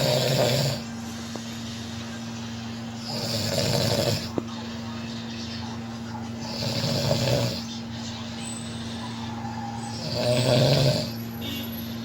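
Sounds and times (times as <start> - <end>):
man snoring: 0.0 - 0.9, 3.0 - 4.4, 6.5 - 7.7, 9.9 - 11.2
steady low hum: 0.0 - 12.0.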